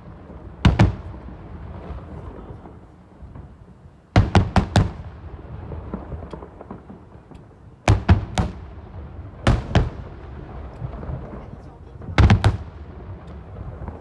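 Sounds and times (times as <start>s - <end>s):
firework shells bursting: 4.1s - 14.0s.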